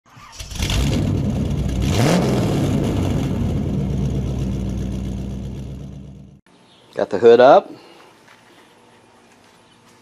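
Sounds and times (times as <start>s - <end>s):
car engine rev: 0.4s - 6.4s
car engine idling: 0.7s - 6.4s.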